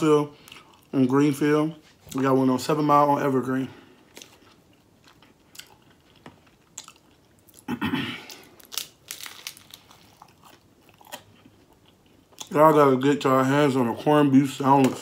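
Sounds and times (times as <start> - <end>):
crunchy chewing: 4.1 - 12.5.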